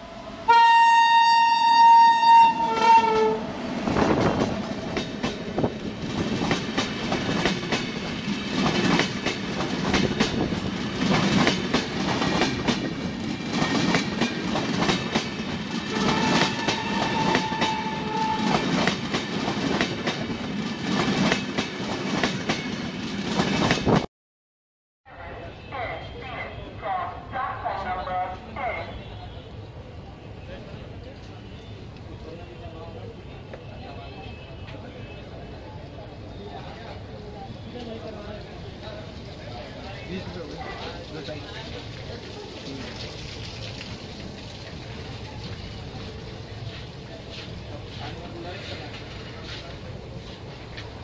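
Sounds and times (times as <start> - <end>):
train horn: 0.4 - 3.5, 15.8 - 18.7
train wheels clattering over rails: 3.8 - 24.1.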